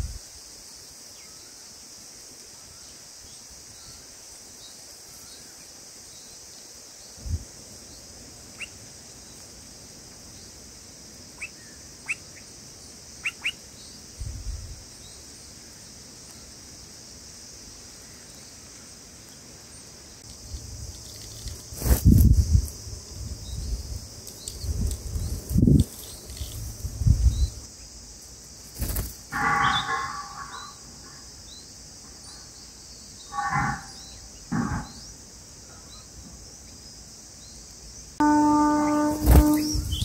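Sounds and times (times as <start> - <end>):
steady high hiss: 0.0 - 40.0
short sharp bird chirps: 28.8 - 31.2, 38.6 - 40.0.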